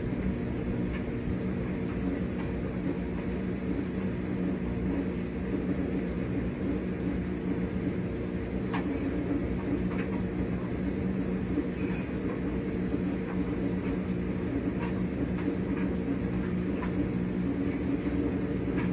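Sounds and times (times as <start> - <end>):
washing machine motor hum: 0.0 - 18.9.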